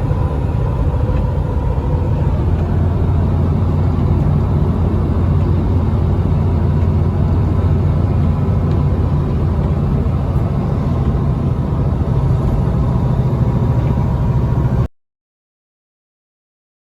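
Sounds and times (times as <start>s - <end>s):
truck engine rumbling: 0.0s - 14.9s.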